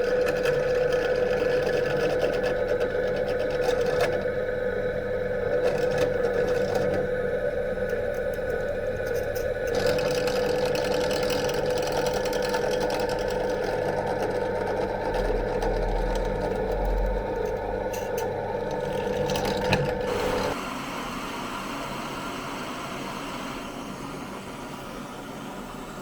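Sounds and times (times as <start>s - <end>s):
steady hum: 16.8s - 26.0s.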